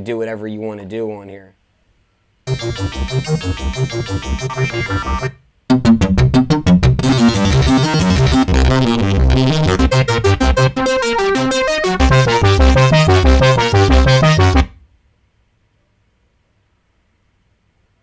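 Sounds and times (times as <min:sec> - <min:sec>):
rhythmic synthesizer sequence: 0:02.5 - 0:14.8.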